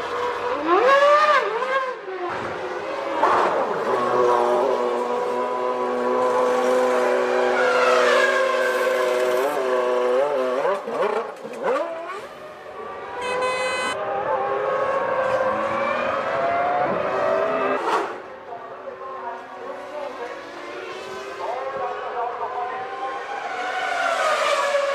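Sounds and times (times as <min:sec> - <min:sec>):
racing car engines screaming: 0:00.0 - 0:13.2, 0:13.9 - 0:18.2, 0:19.8 - 0:24.9.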